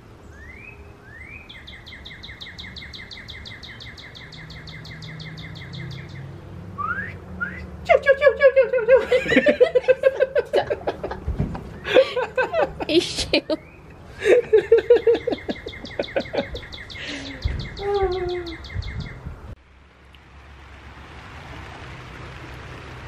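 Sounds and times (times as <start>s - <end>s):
songbird trilling: 0.3s - 6.3s, 15.2s - 19.2s
loud laughter: 8.2s - 13.6s, 14.2s - 17.3s.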